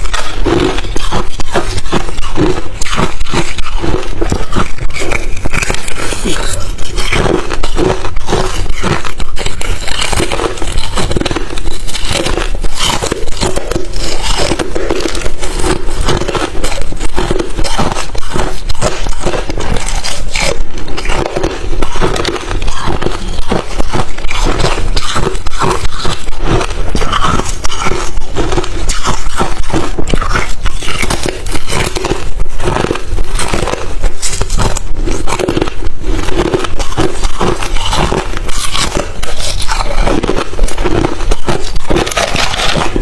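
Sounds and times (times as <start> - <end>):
ice chips crunching while chewed: 0.0 - 43.0.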